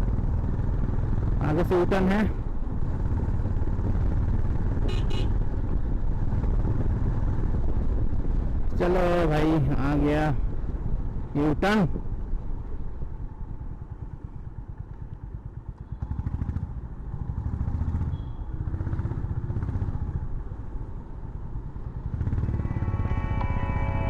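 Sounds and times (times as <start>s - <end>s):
motorcycle engine accelerating: 14.0s - 20.6s, 21.7s - 24.0s.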